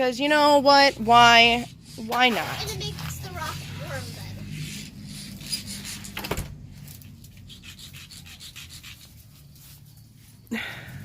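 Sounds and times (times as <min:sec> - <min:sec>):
rock scraping on concrete: 0:00.7 - 0:04.7.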